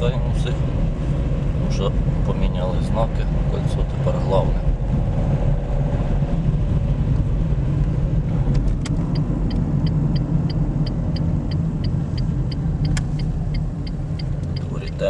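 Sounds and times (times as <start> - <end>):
car engine and tyre rumble: 0.0 - 15.0
turn signal ticking: 7.8 - 15.0.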